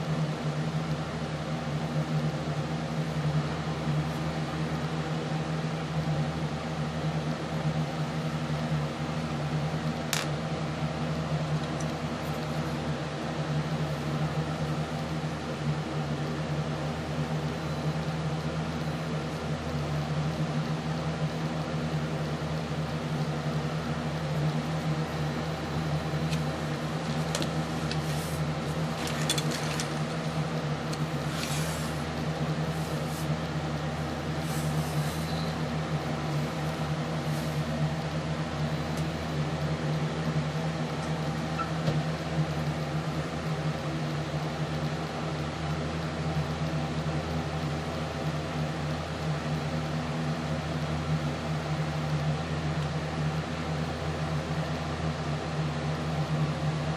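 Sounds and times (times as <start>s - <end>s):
low motor hum: 0.0s - 45.5s.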